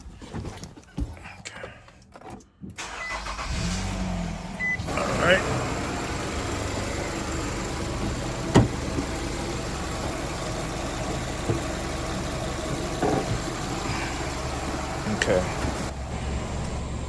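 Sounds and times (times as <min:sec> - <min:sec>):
car engine idling: 0:04.4 - 0:17.0.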